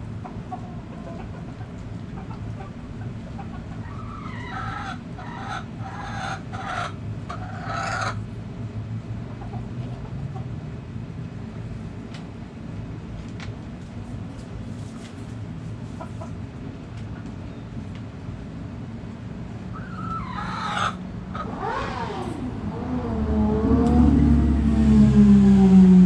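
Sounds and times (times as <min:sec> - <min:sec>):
steady low hum: 0:08.2 - 0:26.0
low drawn-out falling tone: 0:21.2 - 0:26.0.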